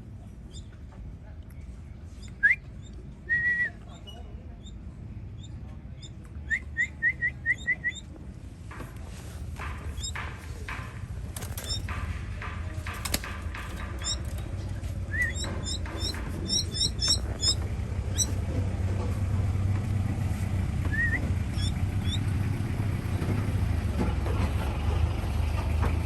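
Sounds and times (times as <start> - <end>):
baby bird chirping: 3.9 - 8.1, 9.9 - 10.2, 11.6 - 11.9, 13.5 - 14.4, 15.1 - 18.4, 20.9 - 22.2.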